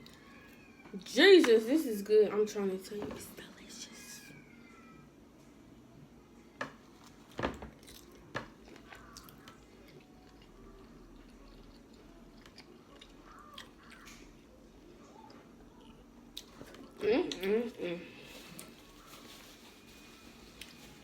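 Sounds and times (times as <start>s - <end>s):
person chewing seafood: 7.0s - 14.5s.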